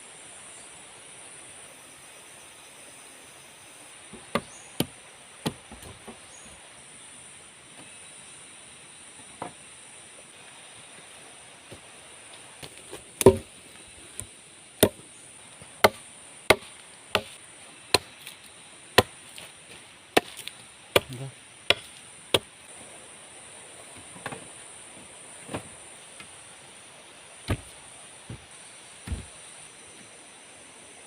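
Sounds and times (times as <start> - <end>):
high insect drone: 0.0 - 31.0
blade chopping wood: 4.2 - 6.2, 12.6 - 13.5, 14.2 - 15.0, 15.8 - 18.4, 19.0 - 19.5, 20.2 - 22.5, 27.5 - 29.4.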